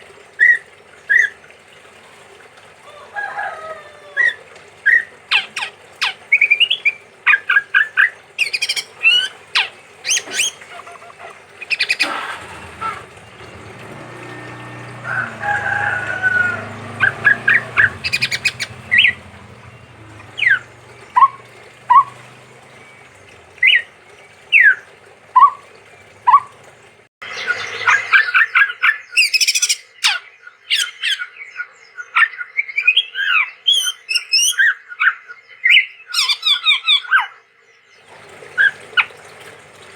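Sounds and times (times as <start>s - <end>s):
babbler singing whistled notes: 16.4s - 23.9s.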